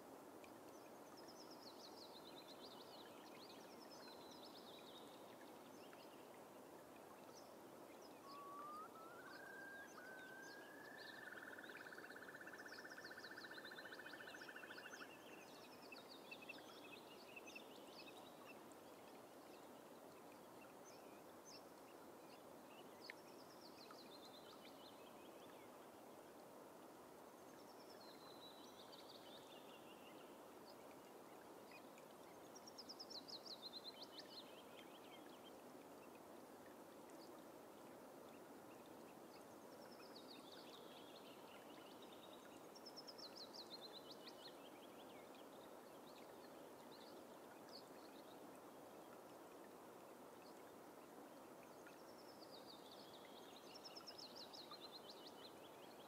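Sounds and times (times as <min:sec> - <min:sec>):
faint steady hiss: 0:00.0 - 0:56.0
whimbrel whistling and trilling: 0:08.2 - 0:12.2.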